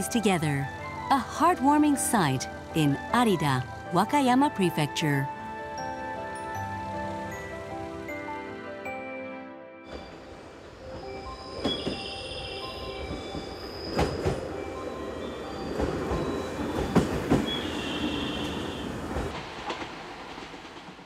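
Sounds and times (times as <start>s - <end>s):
electric train rumbling: 9.9s - 21.0s.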